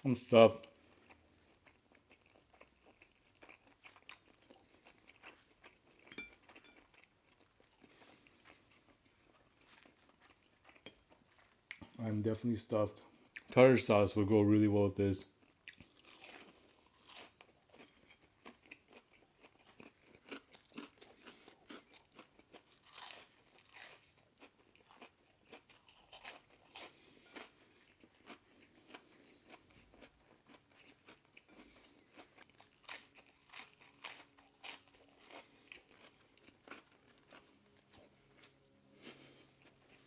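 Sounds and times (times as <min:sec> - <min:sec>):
chewing crunchy fish: 0:00.6 - 0:12.2, 0:15.3 - 0:40.0.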